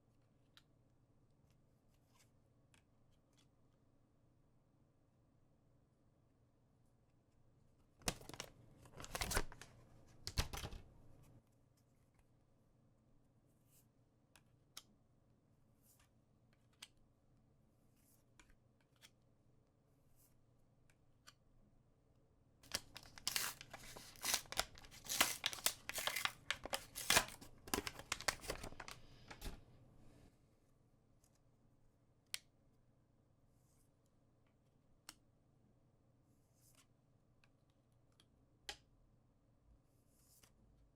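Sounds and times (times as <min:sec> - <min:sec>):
packaging tearing and crinkling: 0:08.1 - 0:09.6, 0:22.6 - 0:29.0.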